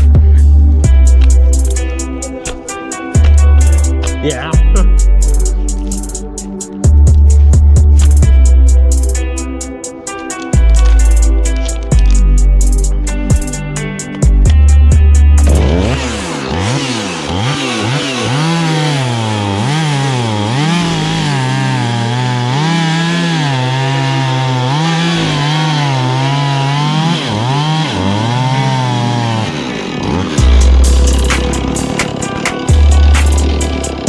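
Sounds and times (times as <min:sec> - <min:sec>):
chainsaw cutting log: 0:00.8 - 0:04.6, 0:10.0 - 0:12.5, 0:15.4 - 0:34.0.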